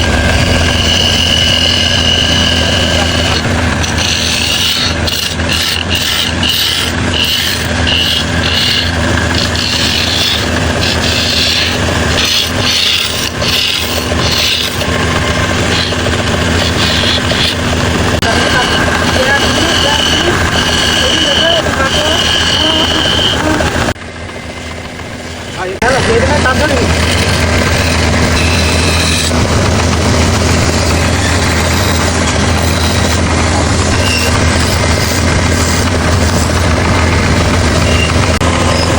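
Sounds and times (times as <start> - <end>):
power tool motor hum: 0.0 - 24.0, 26.3 - 38.9
rasping hiss on bamboo: 1.0 - 14.9.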